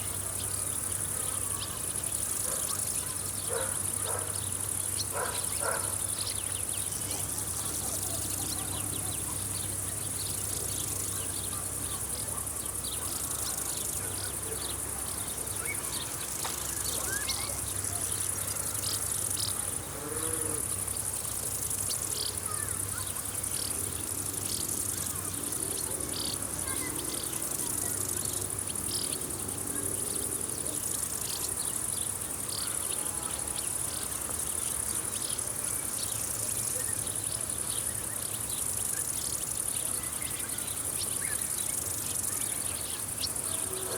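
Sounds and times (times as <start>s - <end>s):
insects chirping: 0.0s - 43.9s.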